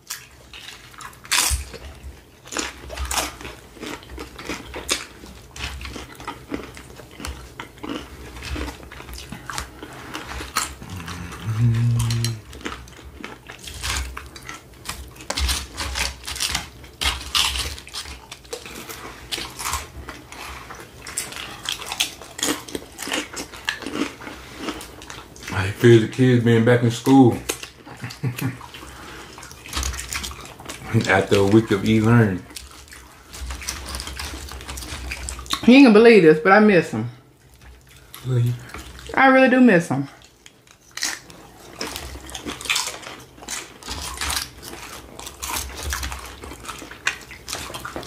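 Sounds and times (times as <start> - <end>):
crunching chips: 0.0 - 35.7, 40.2 - 48.0
person humming: 10.8 - 12.5.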